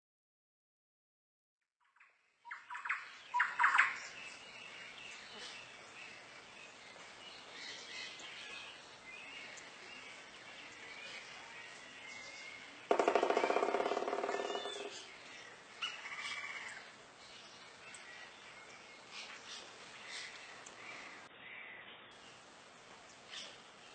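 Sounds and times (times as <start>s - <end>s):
birds chirping and calling: 2.5s - 23.9s
loud rapid rattle: 12.9s - 15.0s.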